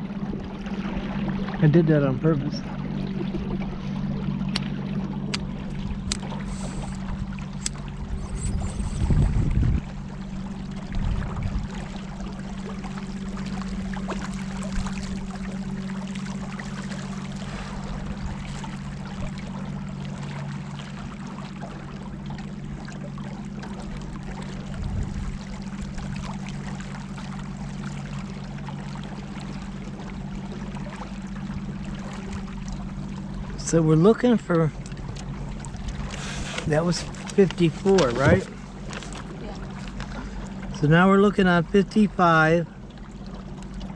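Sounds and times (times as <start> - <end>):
boat motor running: 0.0 - 43.9
water splashing along hull: 0.0 - 43.9
wind gusts on microphone: 8.0 - 10.0.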